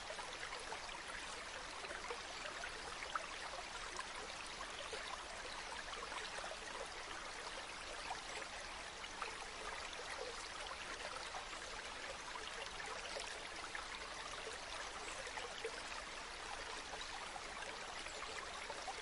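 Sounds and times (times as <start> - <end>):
water splashes and trickles: 0.0 - 19.0.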